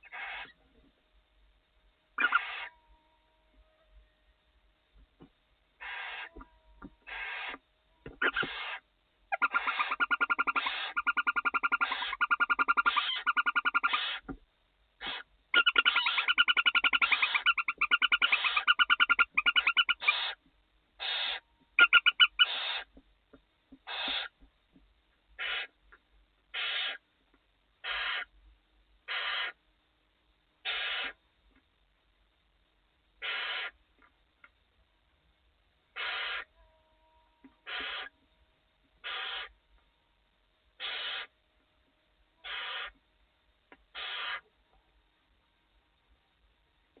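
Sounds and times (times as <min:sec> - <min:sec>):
barn owls calling: 0:00.0 - 0:00.6, 0:02.2 - 0:03.4, 0:05.8 - 0:14.4, 0:15.0 - 0:20.4, 0:21.0 - 0:23.0, 0:23.8 - 0:24.5, 0:25.4 - 0:25.8, 0:26.5 - 0:27.0, 0:27.8 - 0:28.4, 0:29.1 - 0:29.6, 0:30.6 - 0:31.2, 0:33.2 - 0:33.8, 0:35.9 - 0:38.2, 0:39.0 - 0:39.6, 0:40.8 - 0:41.4, 0:42.4 - 0:43.0, 0:43.8 - 0:44.5
owl hissing calls: 0:00.0 - 0:00.6, 0:02.2 - 0:02.8, 0:05.8 - 0:07.6, 0:08.2 - 0:14.3, 0:15.0 - 0:20.4, 0:21.0 - 0:22.9, 0:23.8 - 0:24.4, 0:25.4 - 0:25.8, 0:26.5 - 0:27.0, 0:27.8 - 0:28.3, 0:29.1 - 0:29.6, 0:30.6 - 0:31.2, 0:33.2 - 0:33.8, 0:35.9 - 0:36.6, 0:37.6 - 0:38.2, 0:39.0 - 0:39.6, 0:40.8 - 0:41.4, 0:42.4 - 0:43.0, 0:43.9 - 0:44.5.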